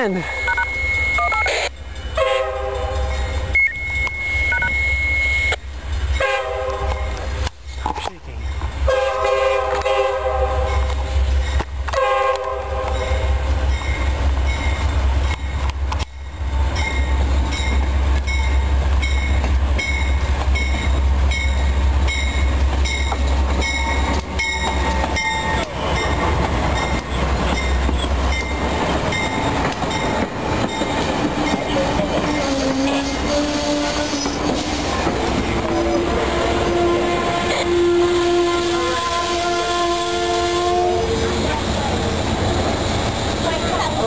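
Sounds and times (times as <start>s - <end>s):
locomotive rumble: 1.8s - 44.0s
train horn blast: 2.2s - 3.3s, 6.2s - 7.2s, 8.9s - 11.0s, 11.9s - 13.4s, 32.0s - 34.7s, 35.6s - 41.4s
train wheels clickety-clack: 9.6s - 36.0s.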